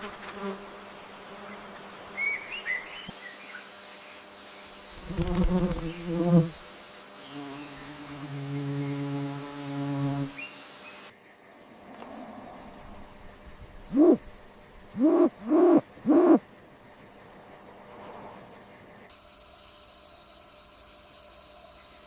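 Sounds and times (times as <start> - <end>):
faint jungle background: 0.0 - 22.0
high insect trill: 2.8 - 22.0
hooting calls: 13.8 - 14.3, 14.9 - 16.4.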